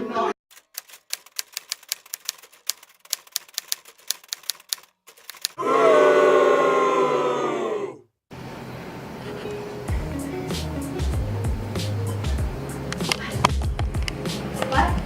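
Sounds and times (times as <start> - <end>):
typewriter keystrokes: 0.5 - 5.6.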